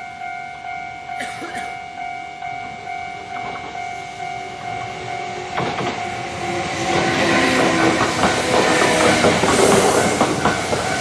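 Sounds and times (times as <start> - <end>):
level crossing warning bell: 0.0 - 9.0, 9.8 - 11.0
train wheels clattering over rails: 4.5 - 11.0.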